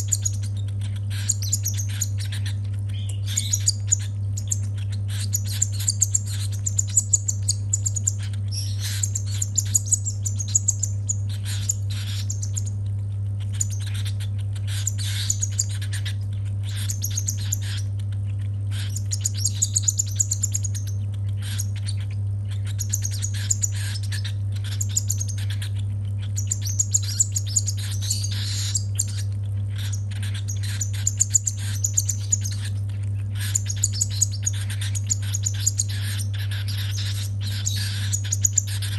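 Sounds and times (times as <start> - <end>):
chick food-begging chirps: 0.0 - 38.9
steady low hum: 0.0 - 38.9.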